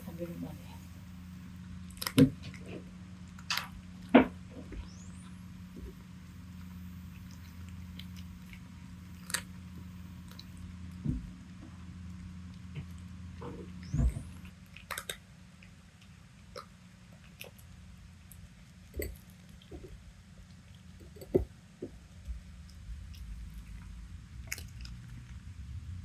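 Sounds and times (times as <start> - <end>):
faint low hum: 0.0 - 26.0
cat chewing clicks: 13.8 - 21.5.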